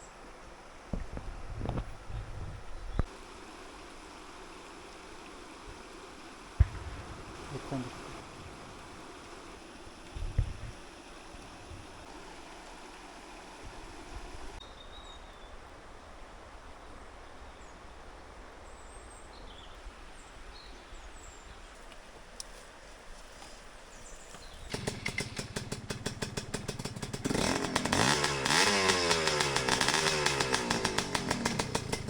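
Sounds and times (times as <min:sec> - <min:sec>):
river water flowing: 0:00.0 - 0:32.0
low thump: 0:06.6 - 0:09.5.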